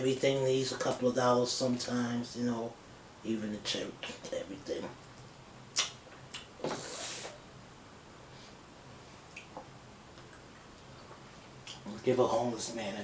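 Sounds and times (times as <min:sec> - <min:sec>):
slurping hiss: 0:06.6 - 0:07.4.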